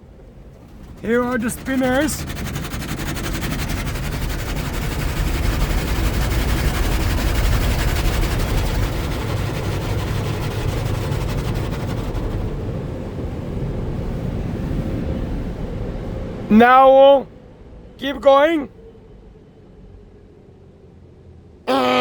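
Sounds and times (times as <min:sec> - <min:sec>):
low rumble: 0:00.0 - 0:16.5
car-wash brushes slapping: 0:00.2 - 0:12.7.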